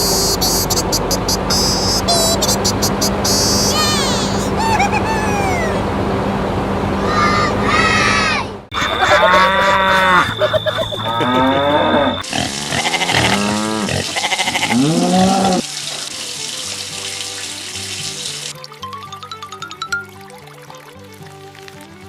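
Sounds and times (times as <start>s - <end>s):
moo-like animal calls: 8.7s - 15.8s
background music with held notes: 15.6s - 22.0s.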